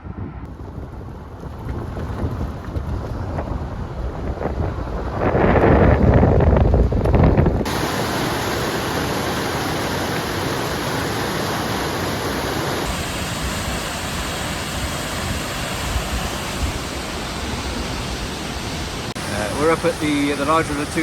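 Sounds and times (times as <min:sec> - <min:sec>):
waterfall rushing: 0:07.7 - 0:21.0.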